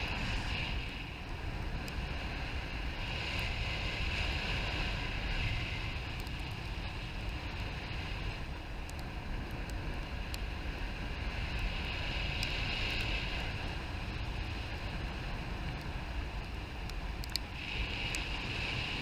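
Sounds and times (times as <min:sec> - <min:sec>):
wind rushing over microphone: 0:00.0 - 0:19.0
faint clicks: 0:08.8 - 0:10.5, 0:15.7 - 0:18.3.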